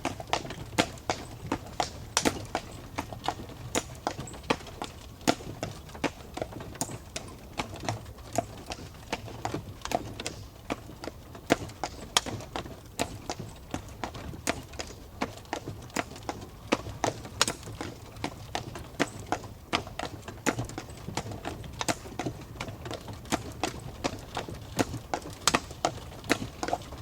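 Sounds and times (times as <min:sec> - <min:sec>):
horse hooves clip-clopping: 0:00.0 - 0:27.0.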